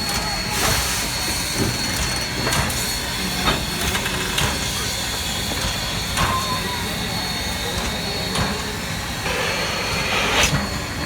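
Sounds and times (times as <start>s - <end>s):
steam hissing: 6.9s - 11.0s.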